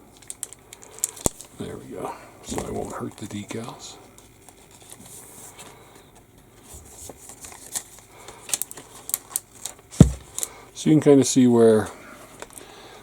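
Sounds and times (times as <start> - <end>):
sharp crinkles and clicks: 0.1 - 1.6, 7.1 - 10.6
paper rustling: 6.6 - 10.5.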